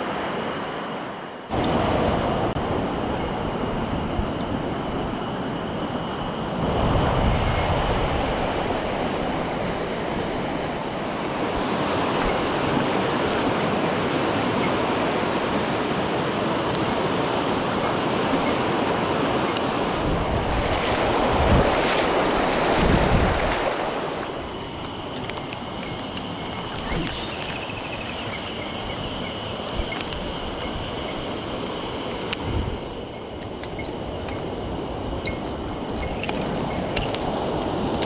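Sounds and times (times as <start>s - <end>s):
mountain stream rushing: 7.7s - 38.0s.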